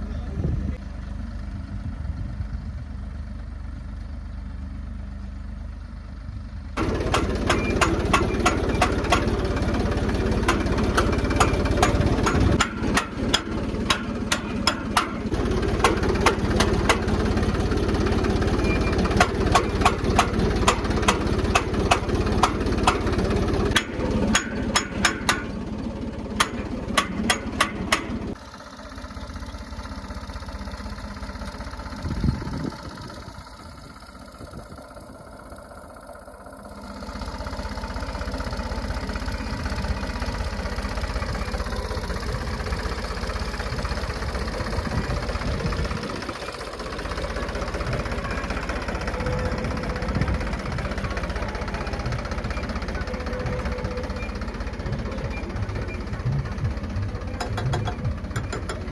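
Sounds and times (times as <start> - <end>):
tractor engine running: 0.0 - 58.9
sharp clicks and clatters: 6.8 - 28.4, 43.7 - 58.9.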